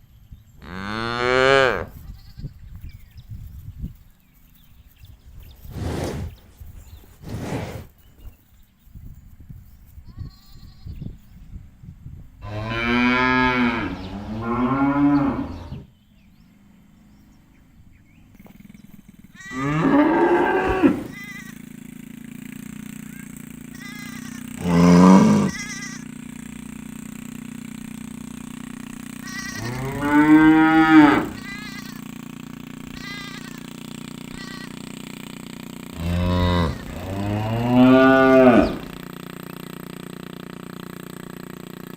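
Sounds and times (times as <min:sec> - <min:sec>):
steady low hum: 0:01.6 - 0:41.9
cows mooing: 0:12.4 - 0:15.9, 0:19.4 - 0:21.6, 0:23.8 - 0:26.1, 0:29.2 - 0:32.0, 0:35.9 - 0:39.0.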